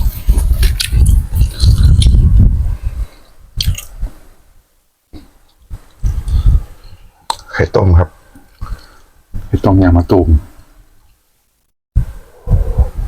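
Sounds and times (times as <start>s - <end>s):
chewing noodles: 0.0s - 2.4s.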